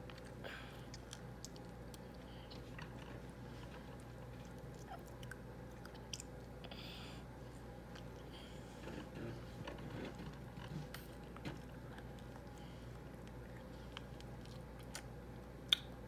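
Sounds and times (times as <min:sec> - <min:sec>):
child chewing and sucking: 0:00.0 - 0:06.8, 0:09.9 - 0:16.0
low steady hum: 0:00.0 - 0:16.0.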